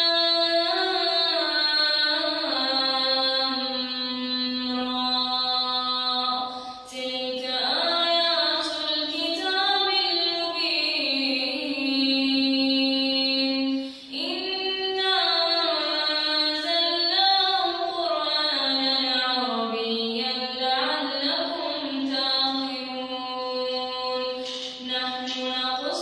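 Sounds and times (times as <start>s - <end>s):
girl chanting melodically: 0.0s - 26.0s.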